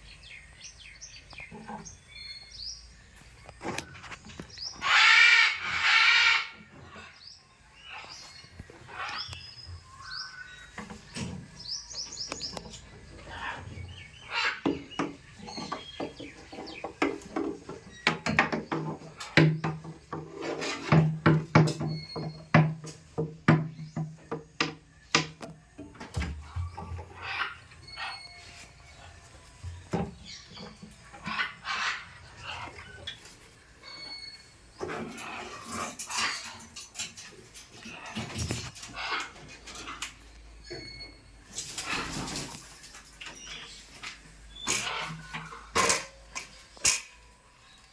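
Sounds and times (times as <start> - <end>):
parrot squawking: 4.8 - 6.6.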